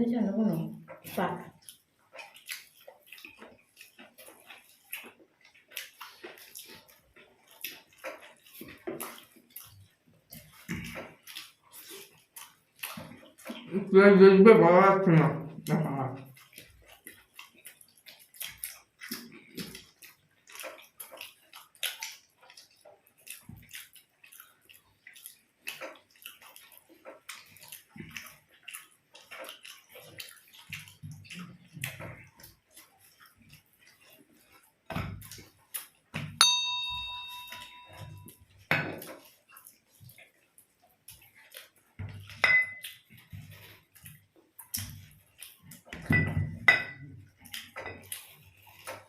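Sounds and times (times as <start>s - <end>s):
wet chewing and smacking: 0.5s - 13.9s, 15.2s - 49.0s
metal dish struck and ringing: 36.4s - 38.2s.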